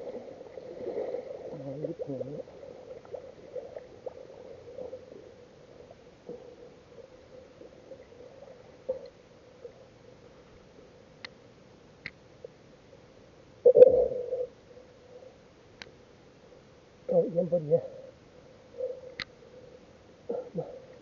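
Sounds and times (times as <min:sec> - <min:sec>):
faint clicks and crackle: 0:00.0 - 0:10.5, 0:15.7 - 0:16.0, 0:18.8 - 0:19.9
muffled underwater hum: 0:13.6 - 0:15.5.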